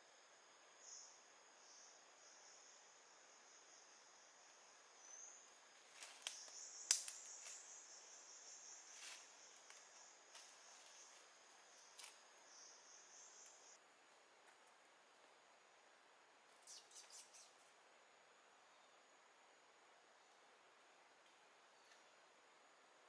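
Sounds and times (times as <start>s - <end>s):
sharp clicks: 6.2s - 7.3s.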